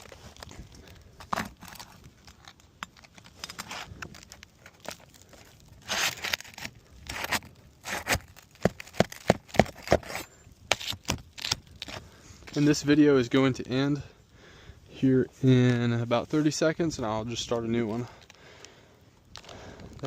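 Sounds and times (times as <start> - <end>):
roof shingles tearing and scraping: 0.0 - 12.7.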